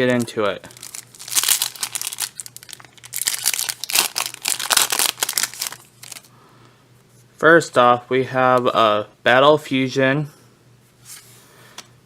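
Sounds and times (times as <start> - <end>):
foil wrapper crinkling torn open: 0.2 - 6.3.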